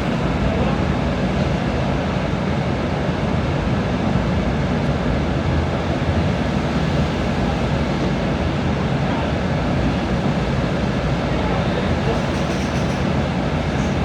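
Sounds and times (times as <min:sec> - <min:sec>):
steady rain: 0:04.8 - 0:14.0.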